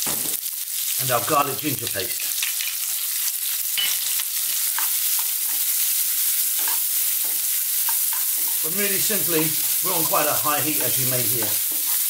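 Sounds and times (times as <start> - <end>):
onions sizzling in hot oil: 0.0 - 12.0
spatula scraping and knocking pan: 3.8 - 12.0.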